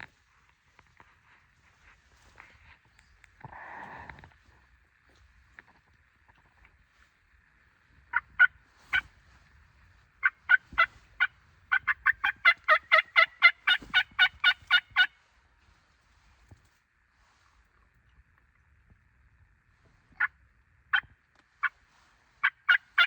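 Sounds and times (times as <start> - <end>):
turkey yelps: 8.1 - 9.1, 10.2 - 15.2, 20.2 - 21.8, 22.4 - 23.0.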